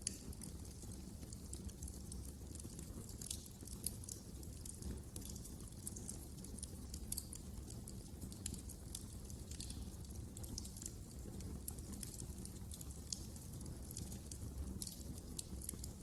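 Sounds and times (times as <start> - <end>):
fire crackling in a fireplace: 0.0 - 16.0.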